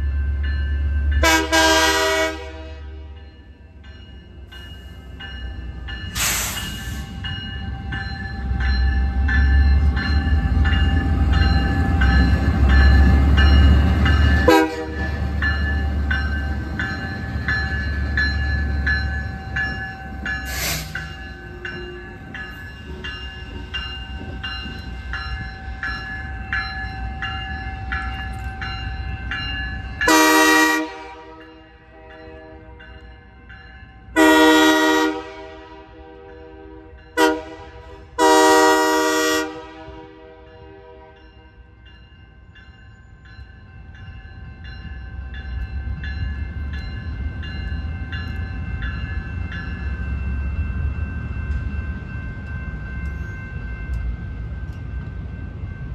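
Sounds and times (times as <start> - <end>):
diesel locomotive engine rumbling: 0.0 - 55.9
locomotive bell ringing: 0.0 - 55.9
locomotive horn blasts: 1.2 - 3.2, 14.4 - 15.1, 30.1 - 32.9, 34.2 - 41.3
air hissing bursts: 6.2 - 7.1.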